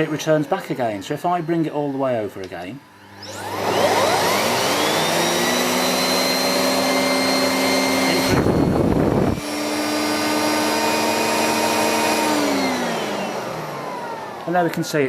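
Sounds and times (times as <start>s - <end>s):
vacuum cleaner motor whining: 0.0s - 15.0s
low rumbling air noise: 8.1s - 9.5s.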